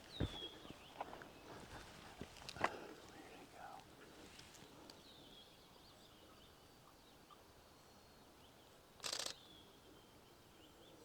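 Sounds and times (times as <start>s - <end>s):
faint bird calls: 0.0s - 7.5s
rapid camera shutter clicks: 9.0s - 9.4s.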